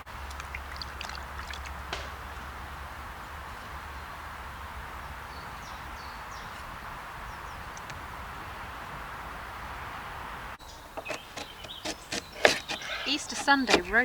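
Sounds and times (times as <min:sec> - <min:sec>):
rushing background noise: 0:00.0 - 0:14.0
high bird chirps: 0:10.6 - 0:14.0.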